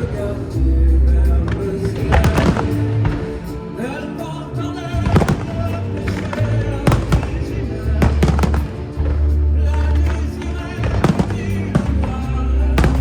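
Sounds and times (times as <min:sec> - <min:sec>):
orchestral show music: 0:00.0 - 0:13.0
fireworks bangs and crackles: 0:01.9 - 0:03.5, 0:05.0 - 0:09.3, 0:10.0 - 0:13.0.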